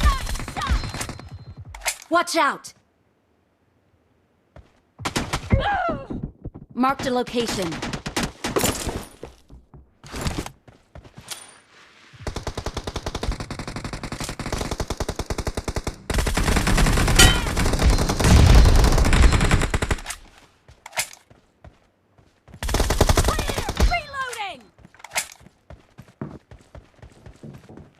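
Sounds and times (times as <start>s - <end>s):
video game automatic gunfire: 12.2s - 20.1s.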